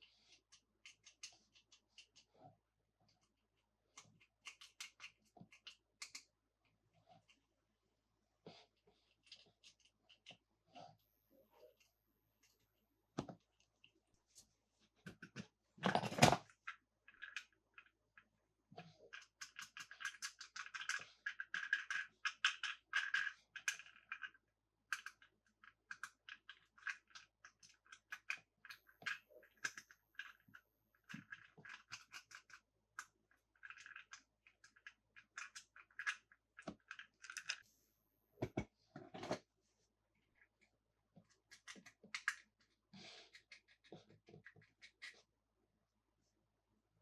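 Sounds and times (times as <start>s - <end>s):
toy cars clicking and scratching: 0.2s - 2.3s, 3.9s - 6.3s, 9.1s - 10.4s, 15.0s - 18.3s, 18.9s - 37.6s, 40.4s - 45.3s.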